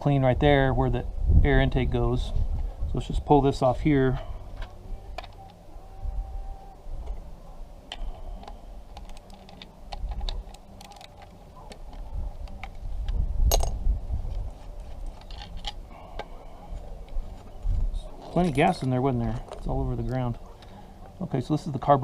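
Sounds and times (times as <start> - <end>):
small metallic clicks and knocks: 7.9 - 14.4.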